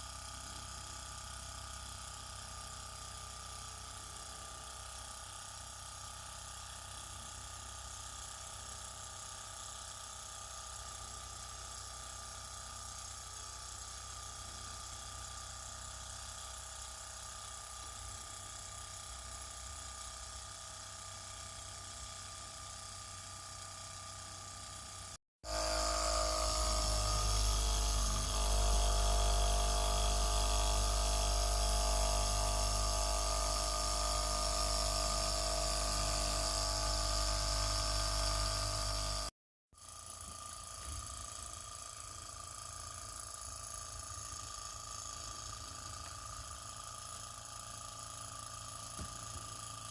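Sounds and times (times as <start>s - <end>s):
small engine high-pitched whirr: 0.0s - 49.9s.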